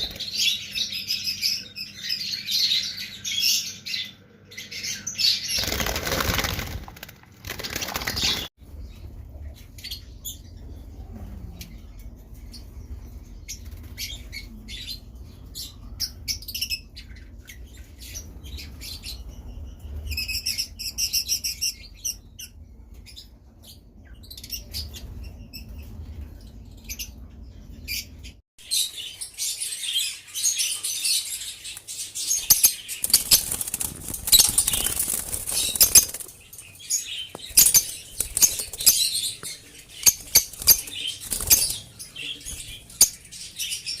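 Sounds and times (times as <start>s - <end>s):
wing flutters: 5.6s - 8.5s, 32.5s - 36.8s, 37.4s - 42.9s
lovebirds chirping: 7.7s - 44.0s.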